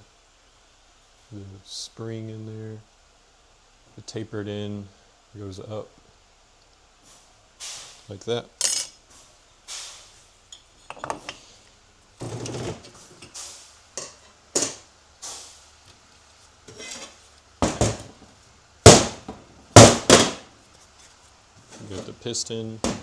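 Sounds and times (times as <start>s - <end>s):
metal parts clinking and clanking: 8.6s - 9.0s, 12.2s - 13.0s.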